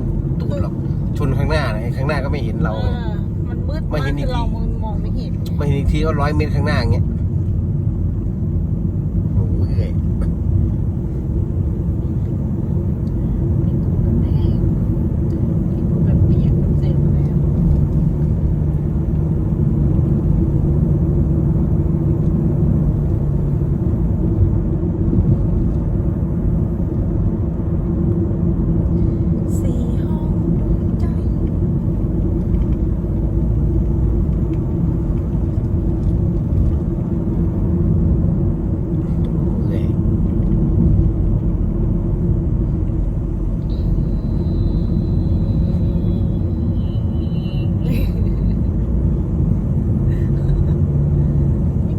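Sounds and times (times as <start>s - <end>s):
car engine and road noise: 0.0s - 51.9s
faint high steady tone: 43.6s - 47.8s.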